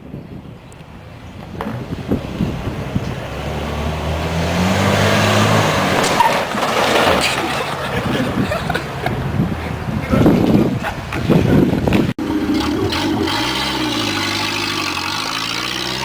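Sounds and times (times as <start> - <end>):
tyre and wind noise: 0.0 - 16.0
truck engine revving: 0.9 - 16.0
rattles and knocks: 5.9 - 9.1.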